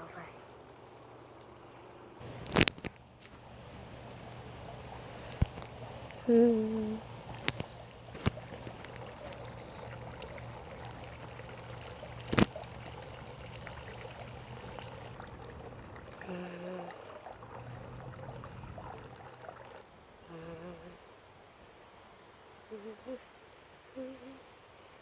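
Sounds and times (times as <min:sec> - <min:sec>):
low hum: 0:02.2 - 0:20.8.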